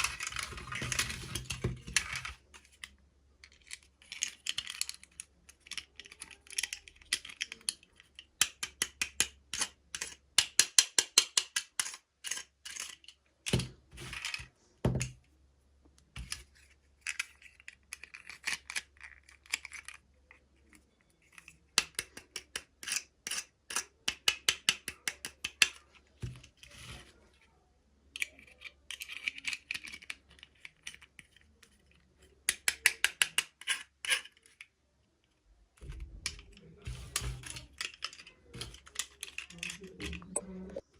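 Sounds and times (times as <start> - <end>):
plastic toy pieces clicking: 0.0 - 13.6, 17.0 - 25.8, 28.2 - 31.8, 32.4 - 34.7, 36.2 - 40.2.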